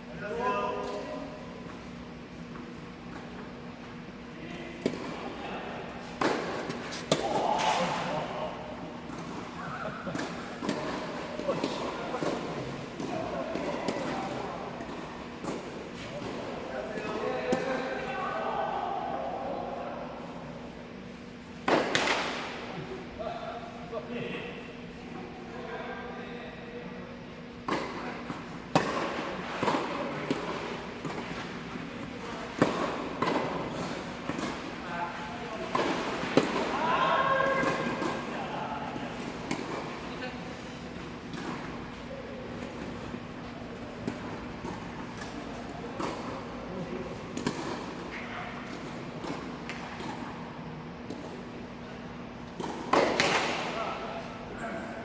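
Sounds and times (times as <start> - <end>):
faint steady hum: 0.0 - 55.0
tennis ball struck by rackets: 6.2 - 7.8, 28.7 - 31.2.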